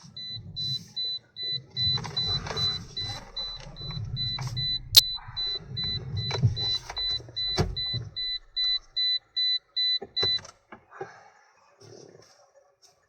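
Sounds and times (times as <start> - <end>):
warning beeper pulsing: 1.8 - 9.2.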